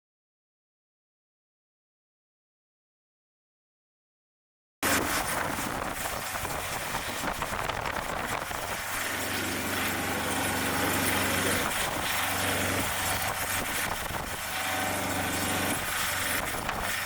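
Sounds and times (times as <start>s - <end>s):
broad rushing noise: 4.8s - 17.0s
engine idling: 4.9s - 17.0s.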